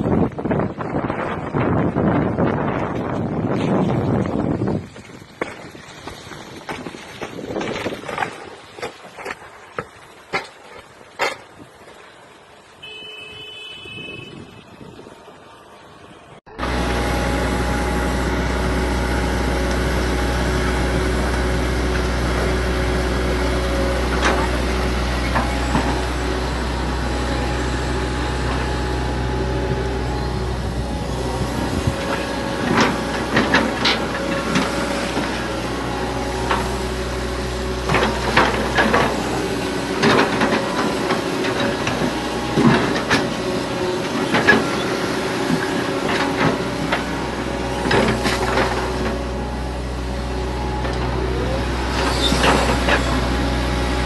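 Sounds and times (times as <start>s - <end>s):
heavy machine engine running: 14.6s - 54.0s.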